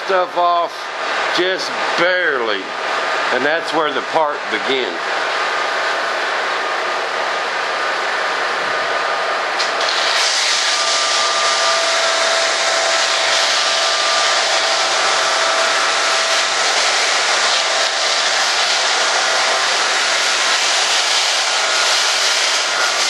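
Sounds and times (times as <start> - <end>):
power sander on foam: 9.6 - 23.0.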